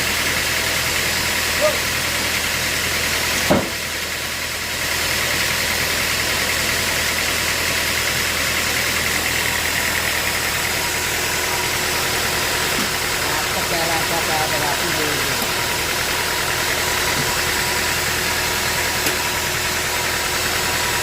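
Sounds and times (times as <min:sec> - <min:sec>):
sawmill machinery running: 0:00.0 - 0:21.0
sharp knock: 0:03.5 - 0:03.8.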